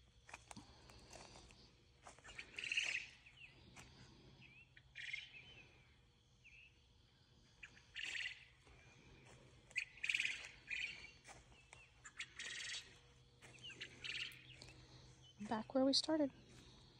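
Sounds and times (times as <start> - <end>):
soft bird chirps: 0.0 - 16.9
songbird trilling: 2.2 - 3.5, 4.4 - 5.7, 7.6 - 8.6, 9.7 - 15.7.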